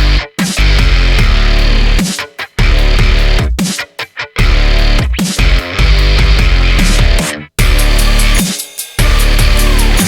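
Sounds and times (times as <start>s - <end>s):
heavy rock music: 0.0s - 10.0s
downward pitch slide: 9.0s - 10.0s.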